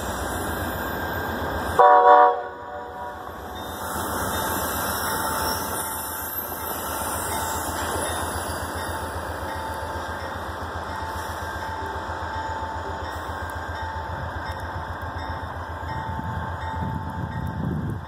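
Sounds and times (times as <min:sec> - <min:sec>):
diesel train rumbling past: 0:00.0 - 0:18.0.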